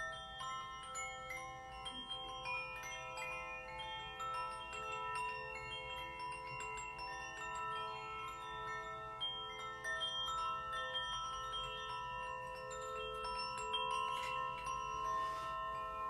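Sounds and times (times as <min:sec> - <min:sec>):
metal chimes ringing: 0:00.0 - 0:16.0.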